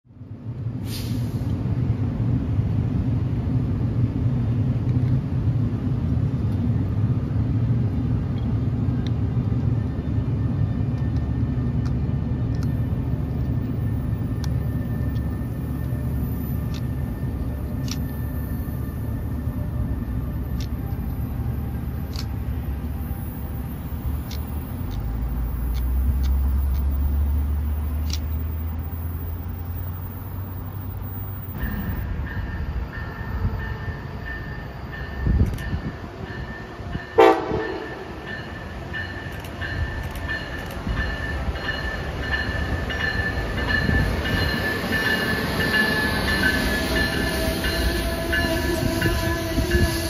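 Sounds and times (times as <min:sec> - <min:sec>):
electric train rumbling on track: 0:00.1 - 0:50.0
sharp clicks: 0:28.0 - 0:28.3.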